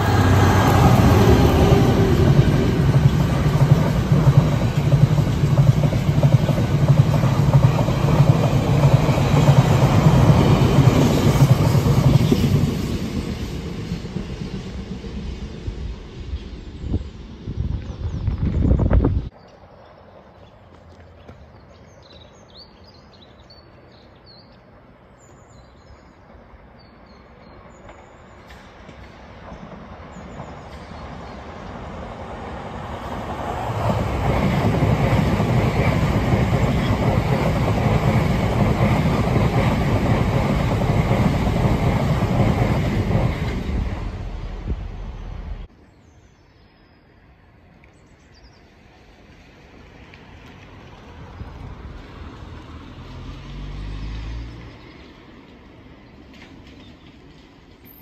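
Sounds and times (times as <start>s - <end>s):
train wheels rushing past: 0.0s - 18.6s, 27.9s - 45.7s.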